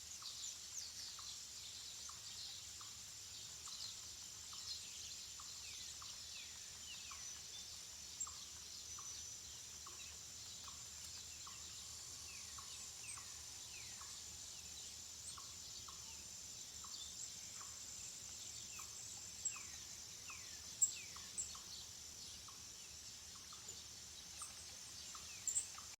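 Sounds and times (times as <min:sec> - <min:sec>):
chorus of birds singing: 0:00.0 - 0:26.0
steady high-pitched hiss: 0:00.0 - 0:26.0.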